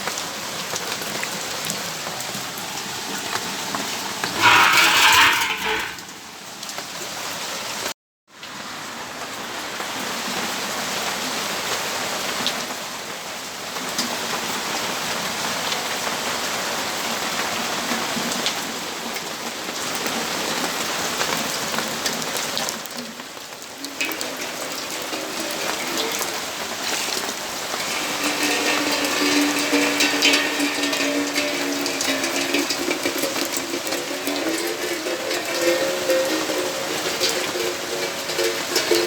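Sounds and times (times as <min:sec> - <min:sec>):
raindrops ticking on surfaces: 0:09.1 - 0:39.0
steady rain hiss: 0:23.2 - 0:39.0.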